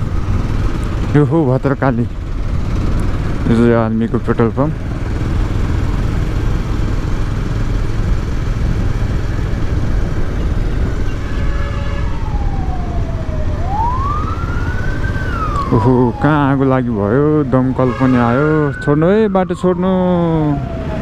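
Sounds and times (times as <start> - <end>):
motorcycle rumble: 0.0 - 21.0
fire engine siren wailing: 10.8 - 21.0.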